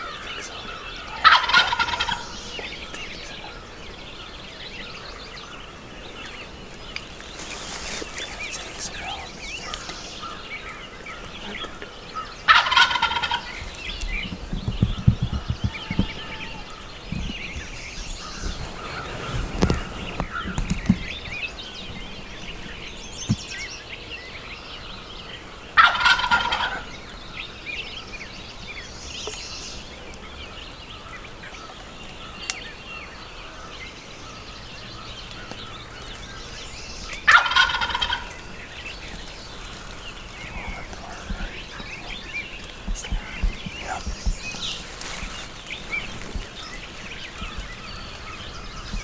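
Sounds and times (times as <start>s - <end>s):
turkey gobbling: 0.0s - 3.6s, 11.4s - 14.0s, 25.8s - 26.9s, 36.4s - 49.0s
faint songbirds: 0.0s - 49.0s.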